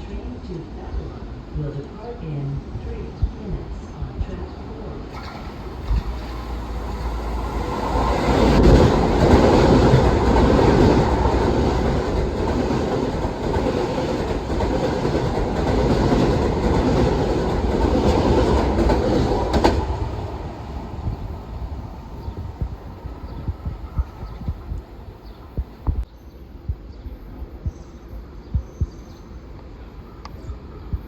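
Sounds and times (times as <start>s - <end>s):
train running past on tracks: 5.1s - 25.6s.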